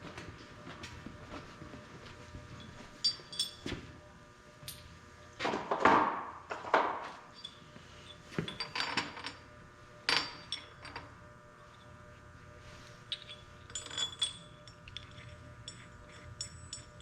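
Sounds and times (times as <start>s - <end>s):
metal tools clinking: 2.6s - 3.7s, 7.3s - 9.4s, 10.1s - 11.1s, 13.1s - 17.0s.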